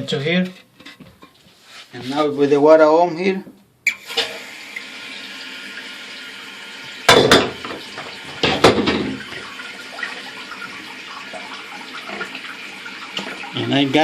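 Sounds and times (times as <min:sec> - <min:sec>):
water refilling toilet tank: 0:03.9 - 0:14.0.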